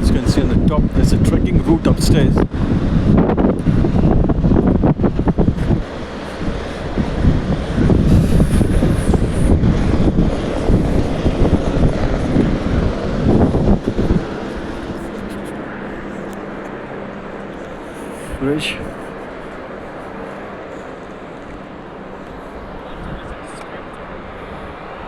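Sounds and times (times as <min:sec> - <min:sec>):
steady low hum: 0:00.0 - 0:25.0
wind buffeting microphone: 0:00.0 - 0:25.0.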